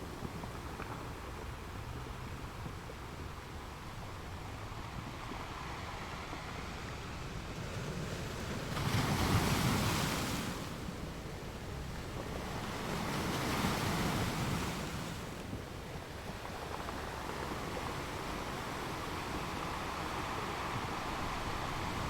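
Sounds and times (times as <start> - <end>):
sea waves washing onto shore: 4.4 - 22.0.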